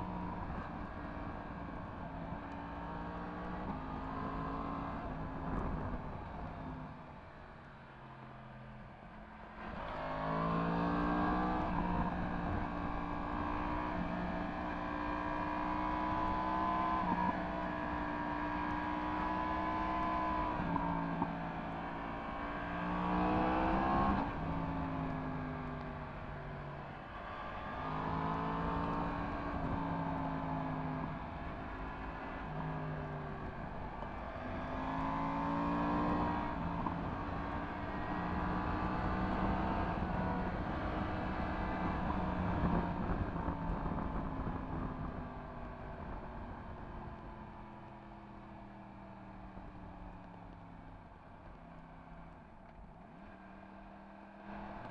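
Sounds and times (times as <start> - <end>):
wind and road noise: 0.0 - 54.9.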